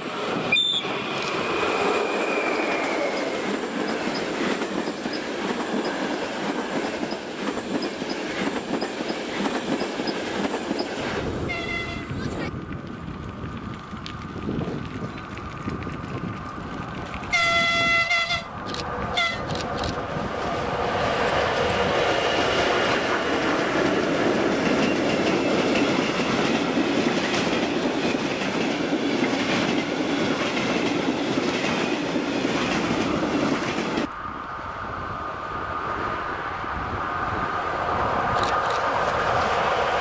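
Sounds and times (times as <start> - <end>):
locomotive horn: 11.4 - 12.2, 17.3 - 19.5.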